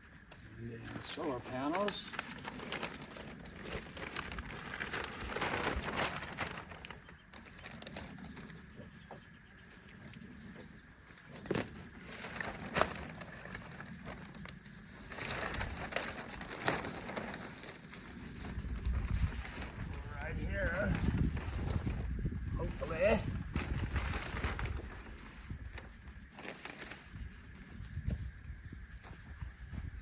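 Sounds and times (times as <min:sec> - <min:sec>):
rustling handling noise: 0:00.3 - 0:09.2, 0:10.1 - 0:27.8.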